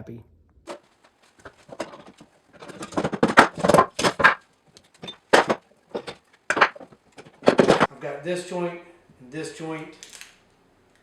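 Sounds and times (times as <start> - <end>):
wood and tools clattering: 0.7 - 7.9.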